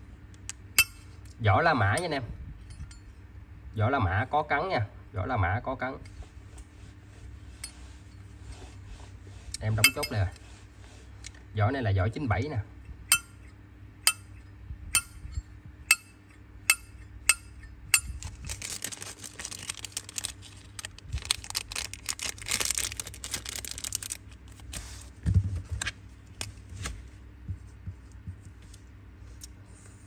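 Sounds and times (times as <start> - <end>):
rustling and scraping: 6.1 - 11.5, 18.0 - 30.0.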